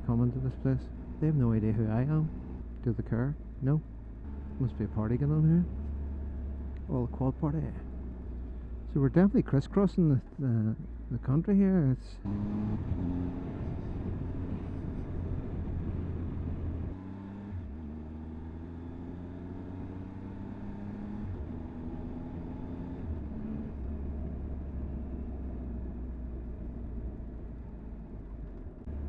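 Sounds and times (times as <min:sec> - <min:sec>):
motorcycle engine at road speed: 0:00.0 - 0:09.4, 0:12.2 - 0:29.0
wind rumble: 0:12.8 - 0:16.9.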